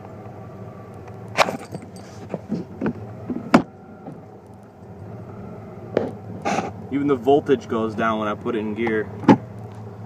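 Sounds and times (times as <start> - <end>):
engine idling with misfire: 0.0 - 10.0.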